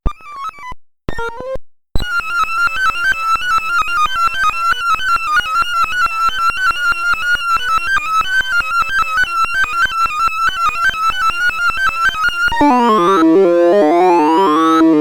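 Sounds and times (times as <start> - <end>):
rapid synthesized beeps: 12.5 - 15.0.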